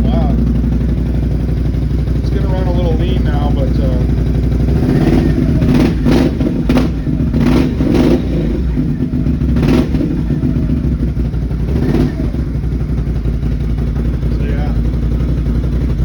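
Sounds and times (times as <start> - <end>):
engine idling: 0.0 - 16.0
engine throttle blips: 0.0 - 16.0.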